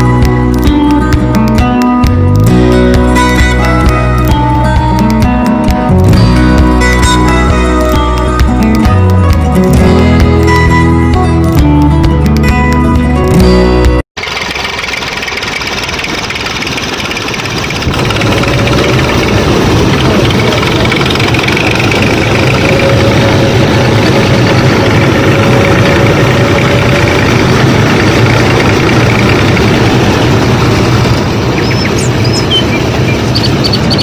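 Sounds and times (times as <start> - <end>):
background music: 0.0 - 14.0
small motor running: 14.2 - 30.8.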